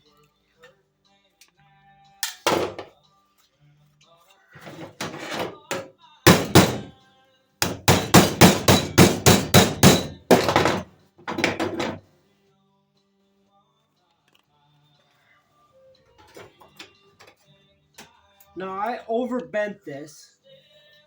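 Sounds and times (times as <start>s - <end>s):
hammer striking sheet metal: 4.6s - 6.9s, 7.6s - 12.0s.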